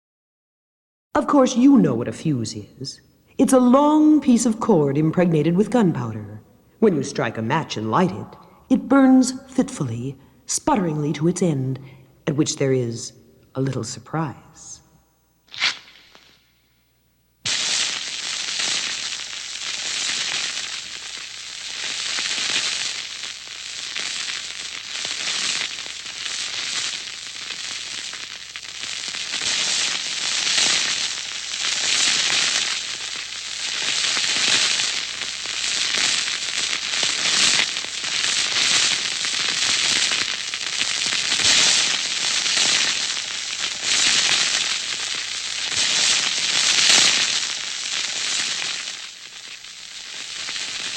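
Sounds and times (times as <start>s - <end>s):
fuse burning and crackling: 15.5s - 50.9s.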